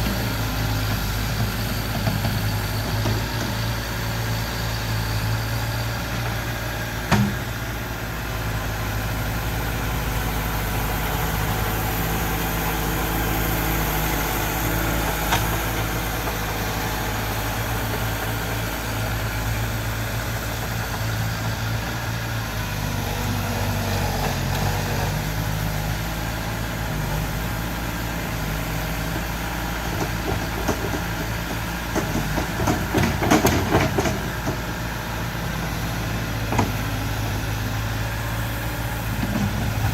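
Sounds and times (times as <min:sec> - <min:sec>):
bulldozer engine running: 0:00.0 - 0:39.9.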